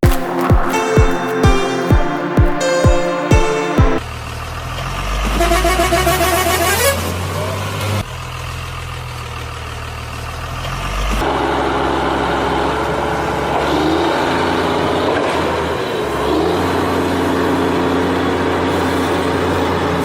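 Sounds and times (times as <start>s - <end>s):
truck engine running and revving: 4.0s - 20.0s.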